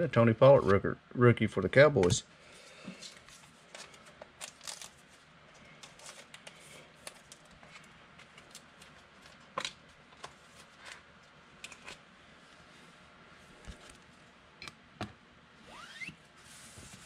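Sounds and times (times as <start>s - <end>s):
cards rustling and flicking: 3.0s - 11.0s.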